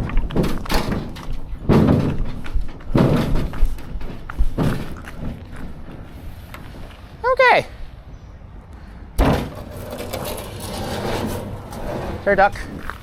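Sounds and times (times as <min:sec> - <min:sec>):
canoe thudding down steps: 0:00.0 - 0:06.1.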